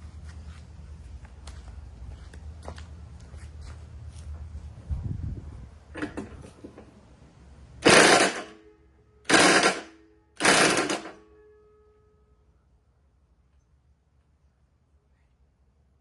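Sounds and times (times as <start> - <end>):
power tool bursts: 7.8 - 8.6, 9.3 - 11.2
faint steady tone: 8.5 - 9.3, 9.9 - 10.4, 11.1 - 16.0.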